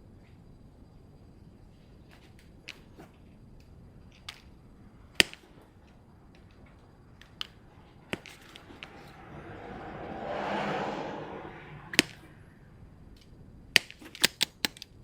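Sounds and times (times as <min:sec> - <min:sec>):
hand tools and wire clicking: 0:14.0 - 0:15.0.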